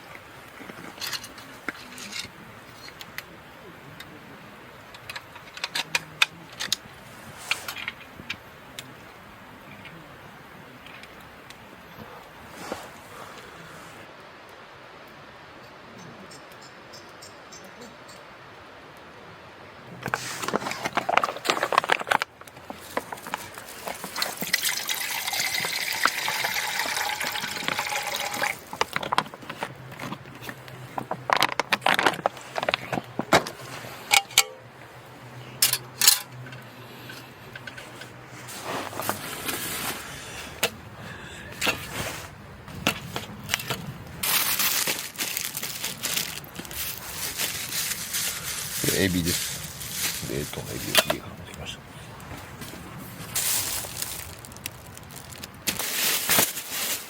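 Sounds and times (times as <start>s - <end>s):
liquid pouring into vessel: 24.1s - 28.8s.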